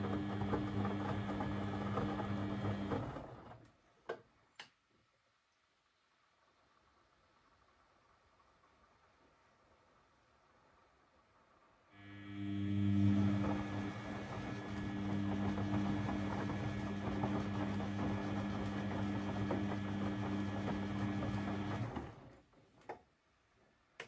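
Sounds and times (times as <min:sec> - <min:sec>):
washing machine humming: 0:00.0 - 0:03.6, 0:12.0 - 0:22.5.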